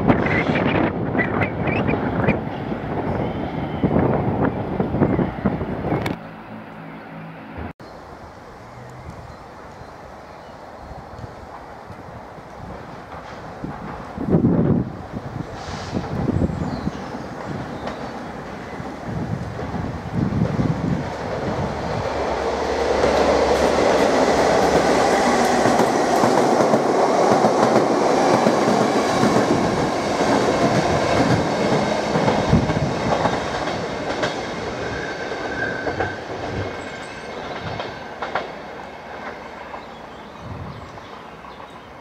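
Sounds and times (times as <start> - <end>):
diesel locomotive engine: 0.0 - 42.0
wheels clacking over rail joints: 21.2 - 40.3.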